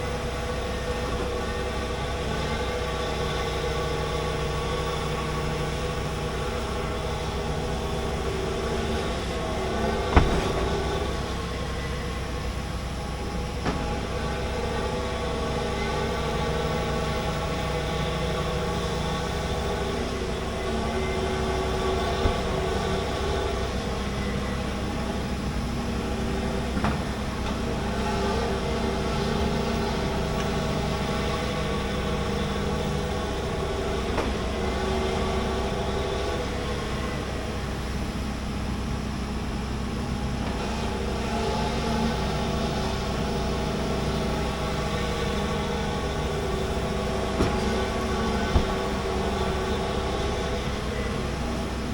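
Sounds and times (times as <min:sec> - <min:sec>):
excavator diesel engine running: 0:00.0 - 0:51.9
short sharp knocks: 0:10.0 - 0:11.4, 0:22.0 - 0:23.4, 0:47.4 - 0:49.1.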